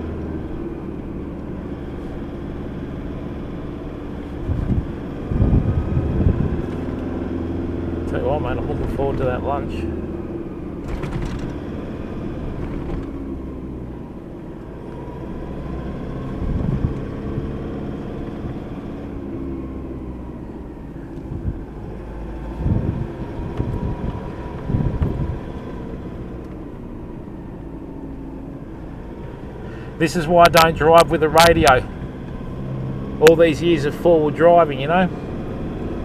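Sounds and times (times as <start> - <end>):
tyres rumbling on dirt track: 0.0 - 26.9, 27.9 - 36.0
car engine running: 0.0 - 36.0
loud thumps: 10.8 - 11.6.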